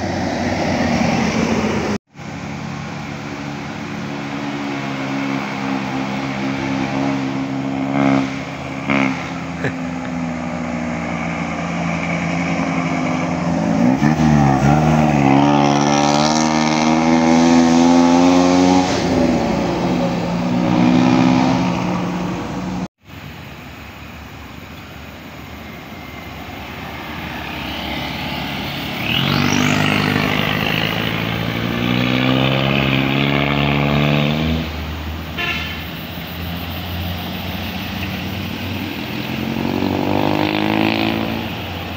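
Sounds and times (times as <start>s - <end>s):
heavy vehicle engines: 0.0s - 41.9s
heavy vehicle horn blasts: 35.3s - 36.3s.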